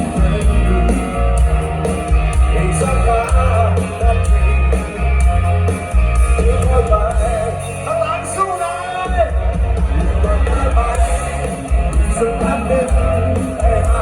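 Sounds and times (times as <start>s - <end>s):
person singing: 0.0s - 5.3s, 10.0s - 14.0s
rock band playing loudly: 0.0s - 14.0s.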